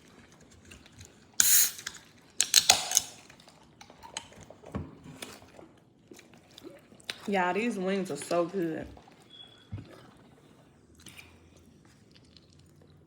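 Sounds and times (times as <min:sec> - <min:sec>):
containers clicking and clattering: 0:01.4 - 0:04.4.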